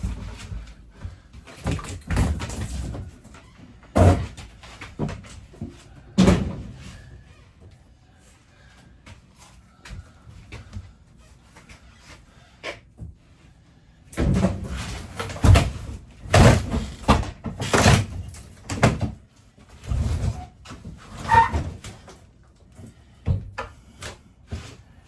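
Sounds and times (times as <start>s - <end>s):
heavy bangs on wall partition: 14.2s - 19.2s.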